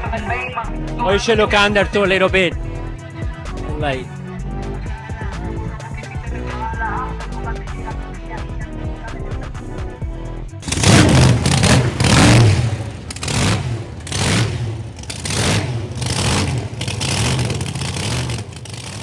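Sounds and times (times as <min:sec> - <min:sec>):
car engine revving: 0:10.6 - 0:19.0.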